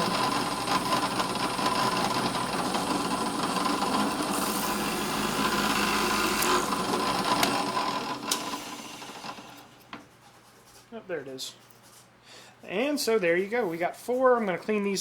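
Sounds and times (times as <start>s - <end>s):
power drill motor whine: 0.0s - 9.8s.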